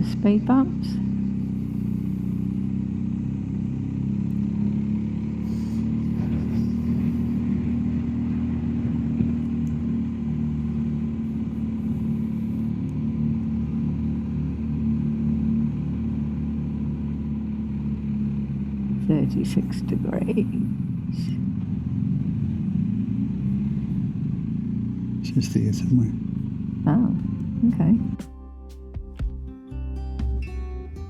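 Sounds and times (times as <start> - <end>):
motorcycle engine running steadily: 0.0 - 31.0.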